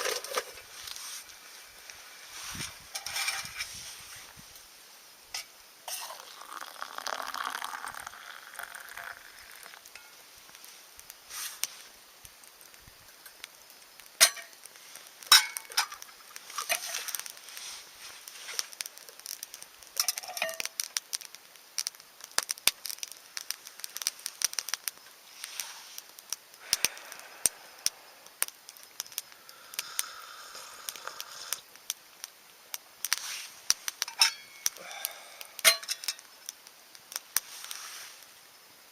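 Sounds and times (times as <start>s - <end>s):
campfire crackling: 0.0s - 38.9s
sharp fire pops: 7.5s - 38.4s.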